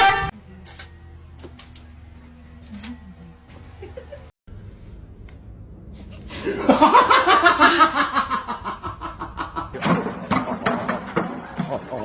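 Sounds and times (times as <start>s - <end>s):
person laughing: 6.4s - 9.8s.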